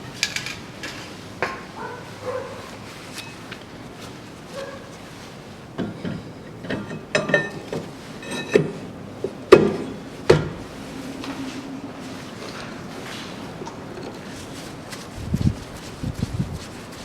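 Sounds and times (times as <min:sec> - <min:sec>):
metal tools clinking and knocking: 0:05.8 - 0:08.8.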